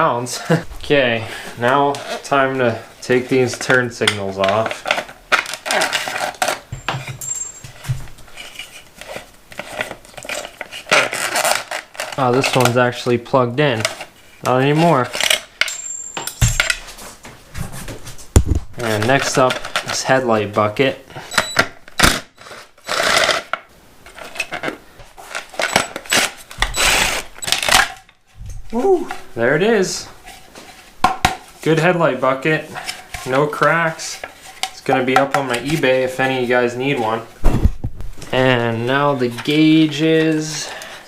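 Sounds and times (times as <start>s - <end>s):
hand tools and metal clinking: 3.5s - 8.8s, 14.7s - 17.1s, 21.2s - 21.7s, 24.1s - 28.7s.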